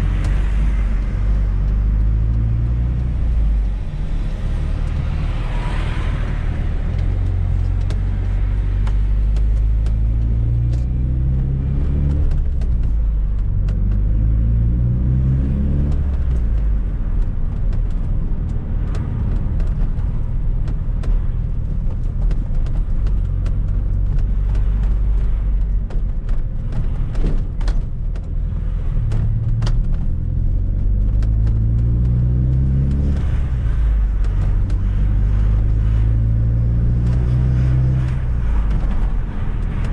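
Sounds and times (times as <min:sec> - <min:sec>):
car engine revving: 0:00.0 - 0:39.9
road rumble: 0:00.0 - 0:39.9
sharp clicks and knocks: 0:00.1 - 0:14.5, 0:15.8 - 0:39.9.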